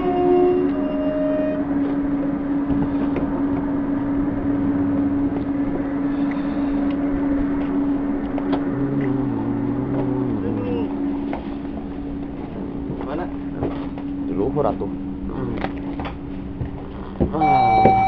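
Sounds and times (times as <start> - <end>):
passengers boarding knocks: 0.0 - 5.8, 15.6 - 18.0
electric train hum: 0.0 - 18.0.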